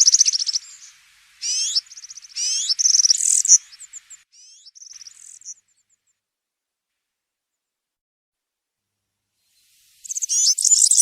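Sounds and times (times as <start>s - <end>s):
songbird high-pitched jingling song: 0.0s - 5.6s, 10.0s - 11.0s.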